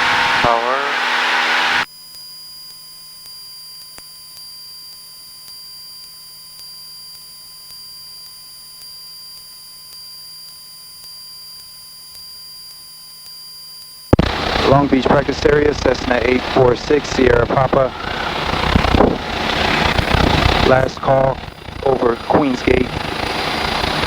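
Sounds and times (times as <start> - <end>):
electrical hum and whine: 0.0 - 24.0.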